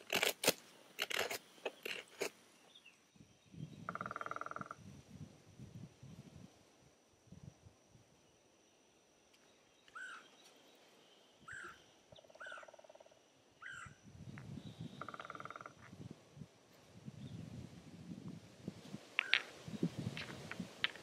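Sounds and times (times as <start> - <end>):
birds calling: 9.8 - 10.8, 11.4 - 13.0, 13.6 - 14.0
buzzy bird trills: 11.5 - 13.0, 13.6 - 14.0.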